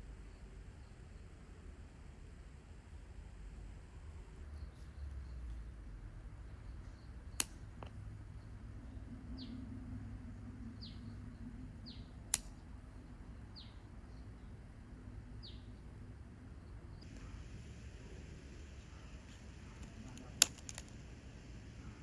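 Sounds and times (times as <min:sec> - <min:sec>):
low steady hum: 0:00.0 - 0:22.0
bird chirping: 0:08.3 - 0:09.6, 0:10.7 - 0:12.2, 0:12.9 - 0:14.6, 0:15.4 - 0:15.9
sharp clicks: 0:19.2 - 0:21.0.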